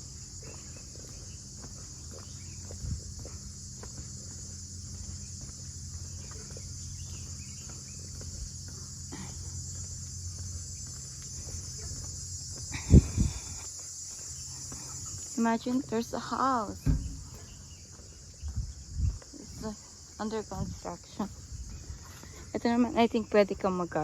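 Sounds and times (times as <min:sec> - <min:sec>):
crickets chirping: 0:00.0 - 0:24.0
faint footsteps on trail: 0:00.0 - 0:24.0
low thump: 0:16.8 - 0:17.5.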